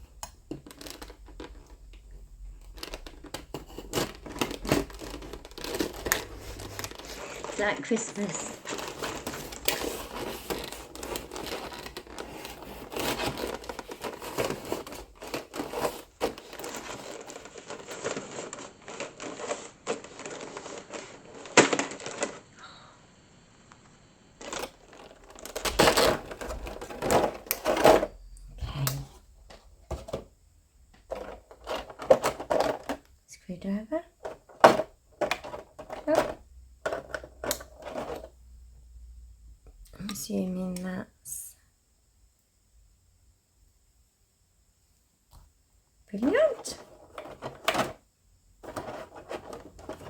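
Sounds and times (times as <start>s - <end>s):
plastic bags crinkling: 0.0s - 22.8s, 24.4s - 29.1s, 31.0s - 33.1s, 34.2s - 38.3s, 46.2s - 48.0s, 48.6s - 50.0s.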